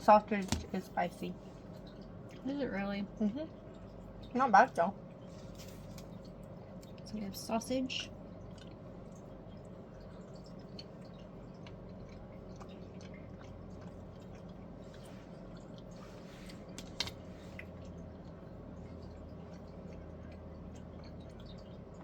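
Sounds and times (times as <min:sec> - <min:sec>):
steady low hum: 0:00.0 - 0:22.0
person chewing: 0:08.4 - 0:22.0.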